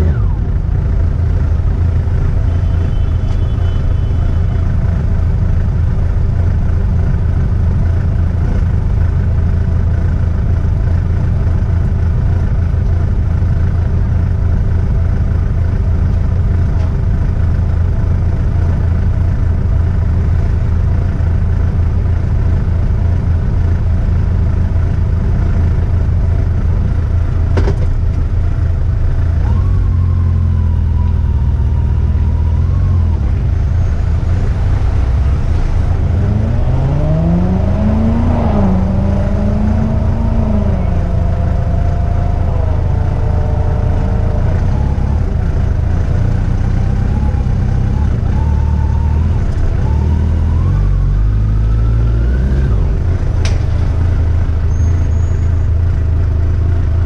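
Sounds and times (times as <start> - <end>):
motorcycle engine accelerating: 29.2 - 56.1.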